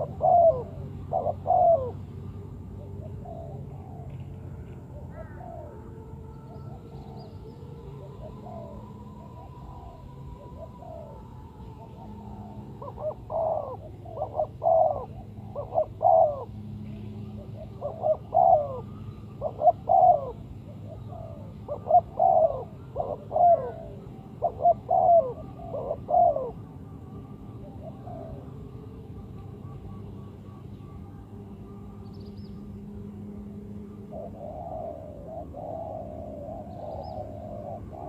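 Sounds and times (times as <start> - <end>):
dove cooing: 0.0 - 38.0.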